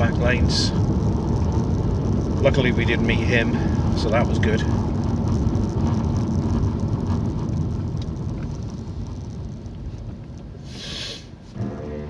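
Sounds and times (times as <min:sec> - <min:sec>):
car road and engine rumble: 0:00.0 - 0:12.0
brief hiss: 0:10.6 - 0:11.8.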